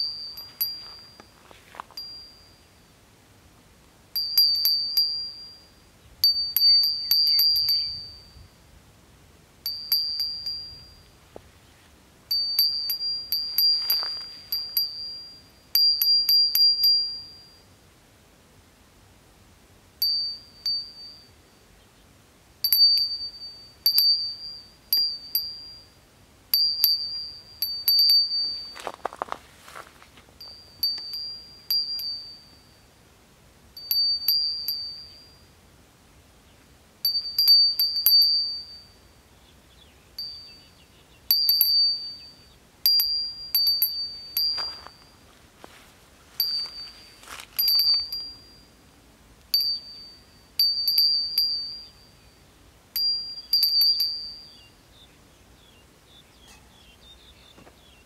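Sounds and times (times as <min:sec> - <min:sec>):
bird high ringing note: 0:04.3 - 0:08.5, 0:56.2 - 0:57.5.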